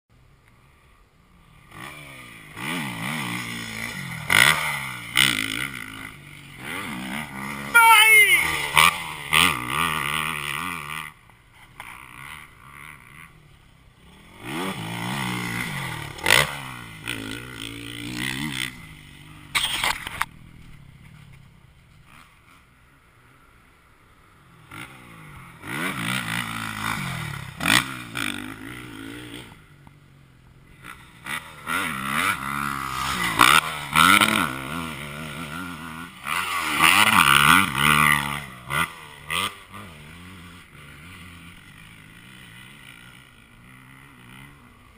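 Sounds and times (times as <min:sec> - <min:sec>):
motocross bike engines revving: 0:00.6 - 0:44.9.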